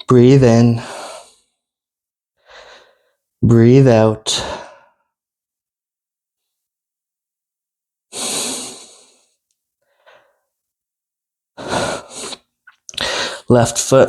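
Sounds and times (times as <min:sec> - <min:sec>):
person breathing close to microphone: 0:00.8 - 0:01.6, 0:02.4 - 0:03.2, 0:08.1 - 0:10.5, 0:11.6 - 0:13.5.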